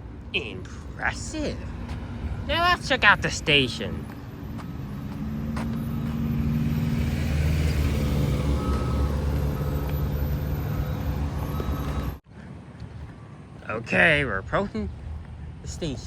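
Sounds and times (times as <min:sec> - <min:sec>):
truck engine droning: 0:00.6 - 0:12.2.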